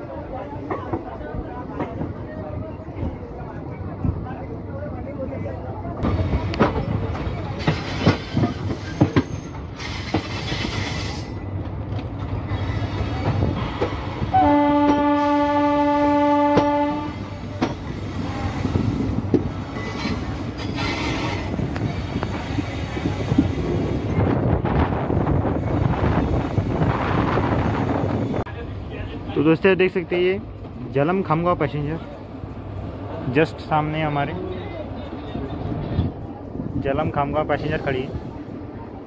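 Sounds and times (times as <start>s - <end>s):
train horn blast: 14.3s - 17.6s.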